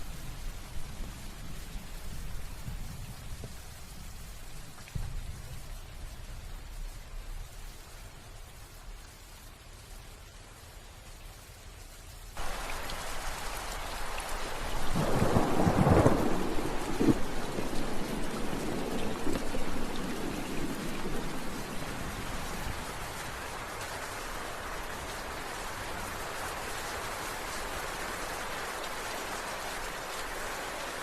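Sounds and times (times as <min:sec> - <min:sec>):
steady rain: 0:00.0 - 0:31.0
thunder rolling: 0:14.4 - 0:23.0.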